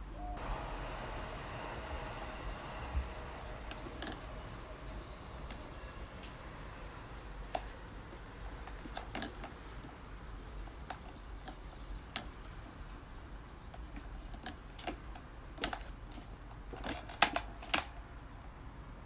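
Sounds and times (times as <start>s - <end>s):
steady low hum: 0.0s - 13.8s
plastic parts clicking and knocking: 8.4s - 13.0s, 13.7s - 18.0s.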